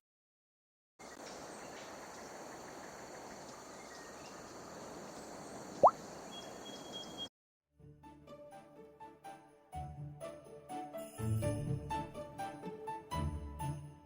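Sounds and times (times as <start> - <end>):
insects chirring: 1.0 - 7.3.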